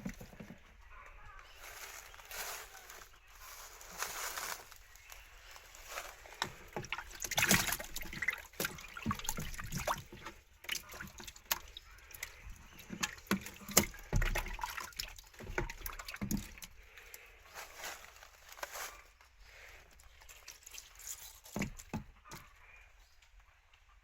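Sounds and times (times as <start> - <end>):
shallow water sloshing and splashing: 3.9 - 17.0.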